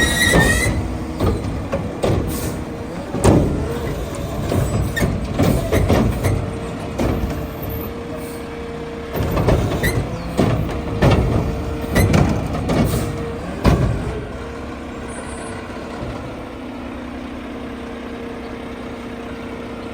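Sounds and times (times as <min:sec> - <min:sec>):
metal clanks and bangs: 0:00.0 - 0:08.5, 0:09.2 - 0:16.4
hydraulic whine: 0:00.0 - 0:16.6
truck engine rumble: 0:00.0 - 0:19.9.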